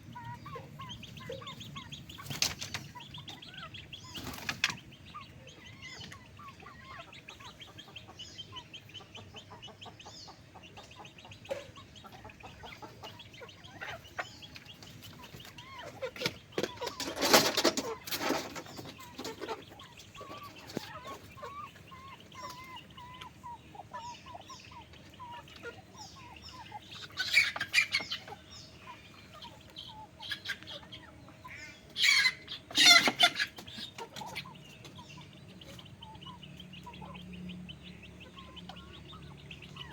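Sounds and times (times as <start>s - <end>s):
chickens clucking and calling: 0.0s - 39.9s
noisy chicken outbursts: 31.9s - 34.4s.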